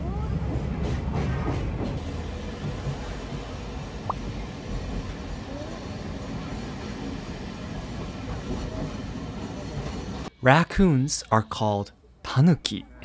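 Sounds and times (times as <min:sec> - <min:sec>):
train wheels rumbling on rails: 0:00.0 - 0:10.3.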